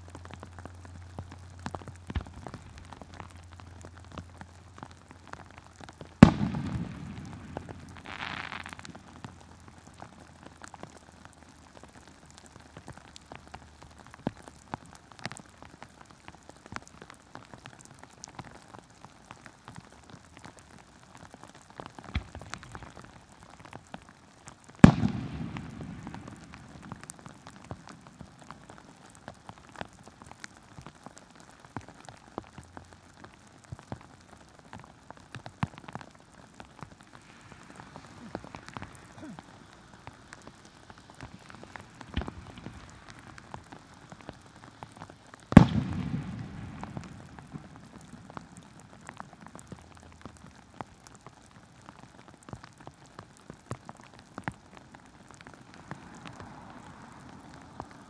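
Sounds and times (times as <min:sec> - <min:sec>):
heavy rain pattering: 0:00.0 - 0:58.0
faint firework thuds: 0:00.1 - 0:11.0, 0:21.2 - 0:32.6, 0:33.2 - 0:50.3.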